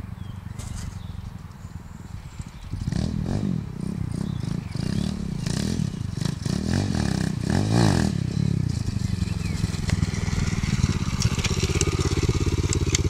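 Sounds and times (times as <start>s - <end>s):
pit bike engine revving: 2.7s - 13.0s.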